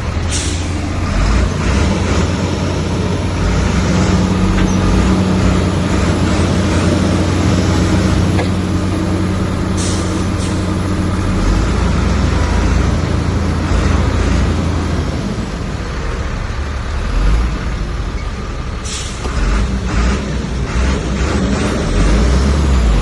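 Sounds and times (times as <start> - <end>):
heavy diesel engine running: 0.0 - 23.0
short hisses: 0.3 - 0.8.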